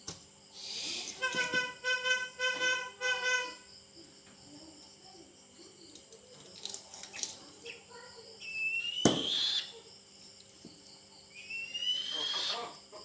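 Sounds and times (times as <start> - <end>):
eagle whistled call: 8.4 - 9.8, 11.3 - 12.7.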